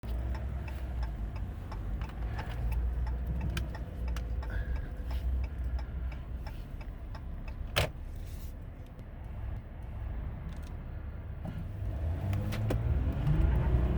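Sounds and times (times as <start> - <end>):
diesel engine rumble inside cab: 0.0 - 13.9
light ticks: 0.2 - 7.6.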